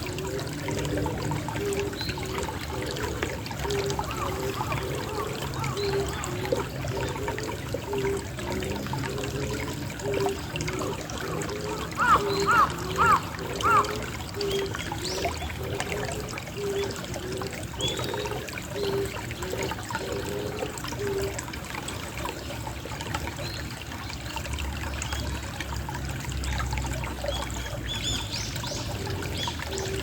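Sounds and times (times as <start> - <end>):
water trickling: 0.0 - 30.0
pigeon cooing: 0.1 - 21.4.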